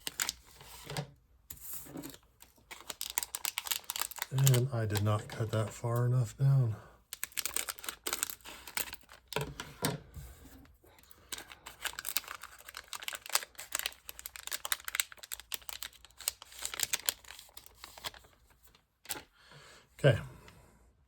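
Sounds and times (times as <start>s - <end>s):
card pack wrapper crinkling and tearing: 0.0s - 1.0s, 1.6s - 6.4s, 7.1s - 9.4s, 11.0s - 19.3s.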